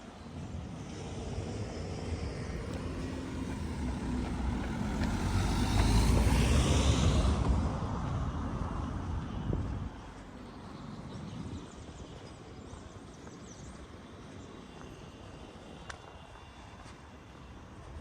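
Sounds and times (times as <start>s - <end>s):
vehicle passing by rumbling: 1.0s - 10.0s.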